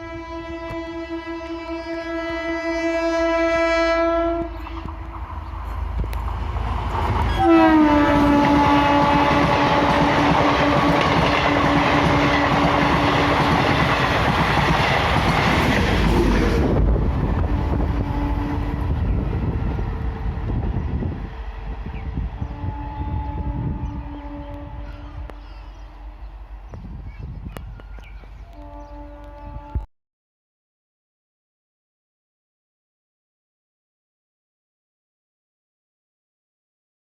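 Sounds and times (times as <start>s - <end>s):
train horn: 0.0s - 5.0s, 7.3s - 13.7s, 16.0s - 19.1s, 22.4s - 25.4s, 28.5s - 29.9s
train rushing and clattering past: 4.4s - 22.7s.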